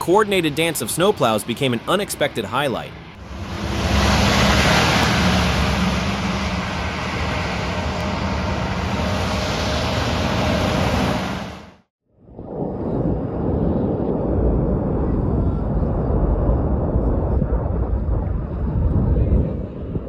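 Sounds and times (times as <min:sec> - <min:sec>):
truck engine hum: 0:00.0 - 0:11.8
rushing road noise: 0:00.0 - 0:11.9
noisy sound: 0:00.0 - 0:20.0.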